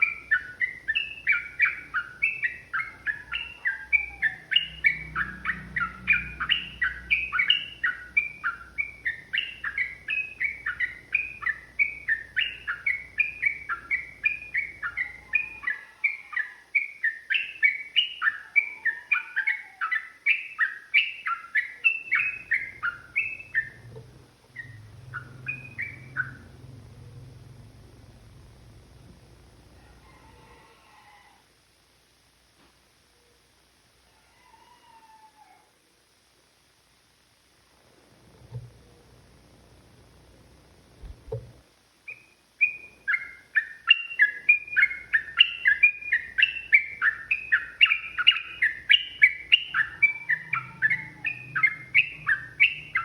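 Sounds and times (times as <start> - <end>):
bird chirping song: 0.0 - 29.1, 42.0 - 53.0.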